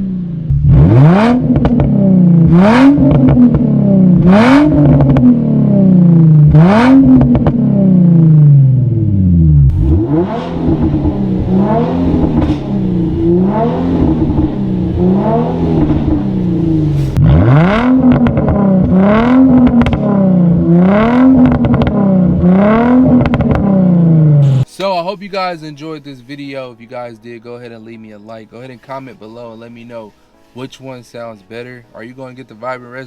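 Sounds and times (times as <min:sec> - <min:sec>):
car engine revving: 0:00.0 - 0:24.7.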